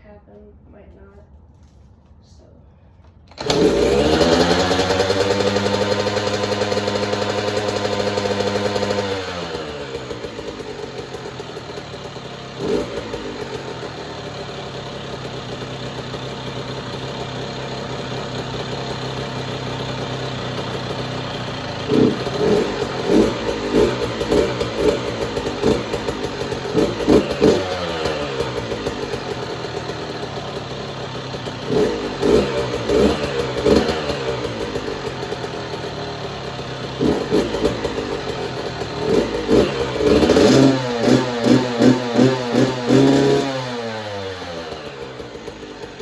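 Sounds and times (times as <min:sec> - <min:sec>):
motorcycle engine revving: 0:03.3 - 0:46.0.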